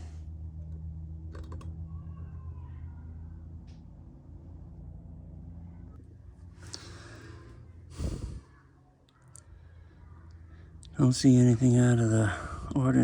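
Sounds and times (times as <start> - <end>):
steady low hum: 0.0 - 13.0
metal engine parts clicking: 0.6 - 1.8.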